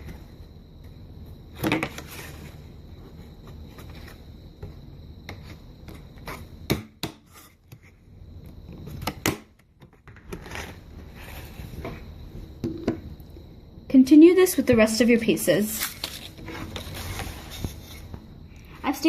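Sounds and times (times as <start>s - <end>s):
paper rustling: 15.7s - 18.2s.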